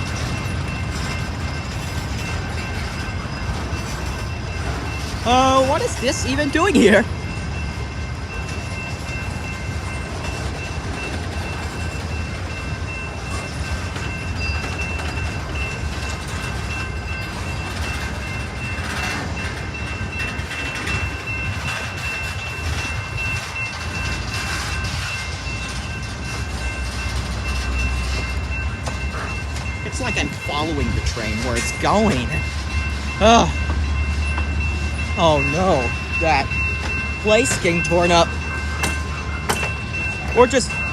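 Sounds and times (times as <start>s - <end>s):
train rumbling over rails: 0.0s - 40.9s
thin high tone: 29.8s - 40.9s.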